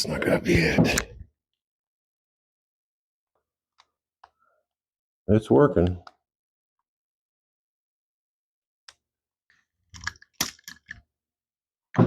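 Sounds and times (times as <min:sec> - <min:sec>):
screwdriver clicks and scrapes on metal: 0:10.0 - 0:11.0.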